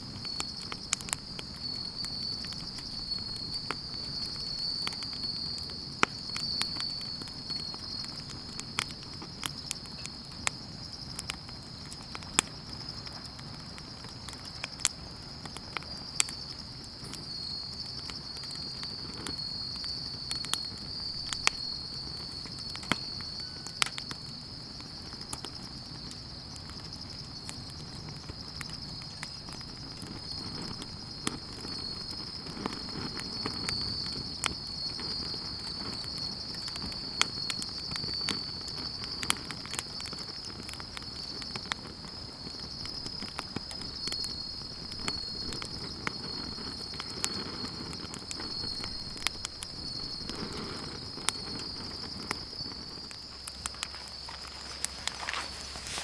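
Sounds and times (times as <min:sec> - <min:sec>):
campfire crackling: 0:00.0 - 0:56.0
night insects chirring: 0:00.0 - 0:56.0.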